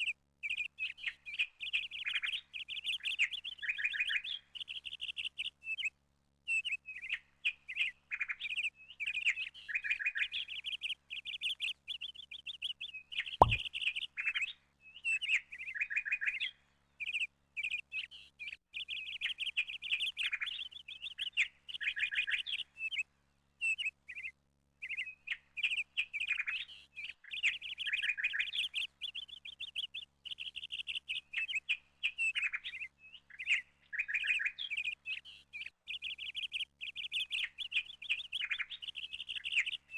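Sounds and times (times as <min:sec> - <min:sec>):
small birds chirping: 0:00.0 - 0:39.9
sharp click: 0:13.4 - 0:13.6.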